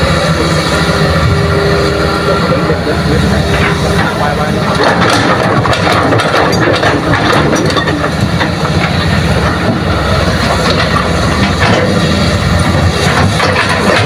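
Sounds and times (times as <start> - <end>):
excavator diesel engine under load: 0.0 - 14.0
metallic rattling and clatter: 3.5 - 12.1, 12.9 - 14.0.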